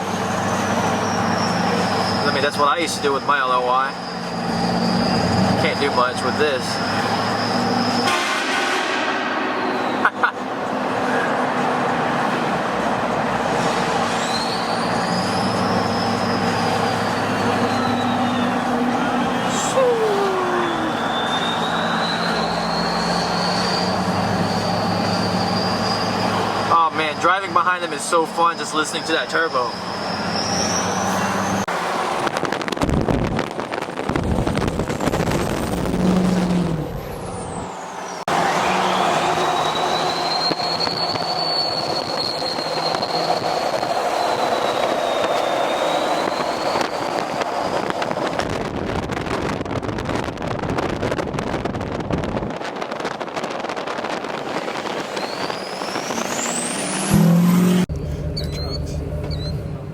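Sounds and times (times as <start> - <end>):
diesel truck driving: 0.0 - 59.9
road noise: 0.0 - 59.9
high turbo whistle: 0.4 - 10.3, 13.4 - 31.7, 37.0 - 48.2, 53.0 - 59.9.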